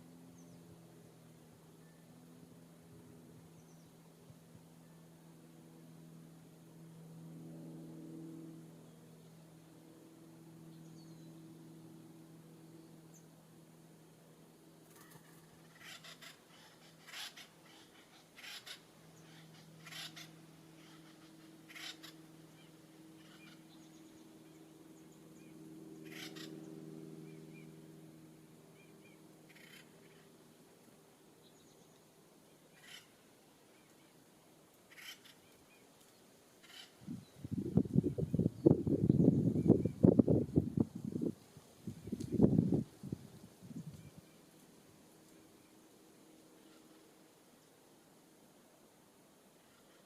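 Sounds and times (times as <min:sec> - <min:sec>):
low steady hum: 0:00.0 - 0:50.0
faint bird calls: 0:14.8 - 0:27.9, 0:28.7 - 0:30.8, 0:31.4 - 0:40.0, 0:45.2 - 0:47.2, 0:49.6 - 0:50.0.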